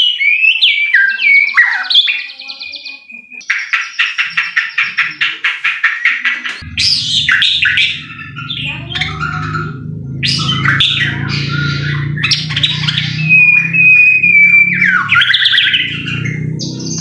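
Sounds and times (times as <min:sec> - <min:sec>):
bird singing: 0:00.0 - 0:17.0
steady low hum: 0:06.6 - 0:17.0.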